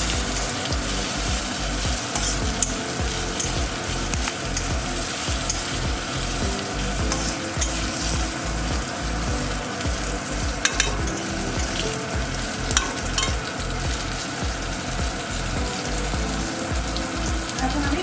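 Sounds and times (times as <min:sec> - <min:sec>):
chillies sizzling in oil: 0:00.0 - 0:18.0.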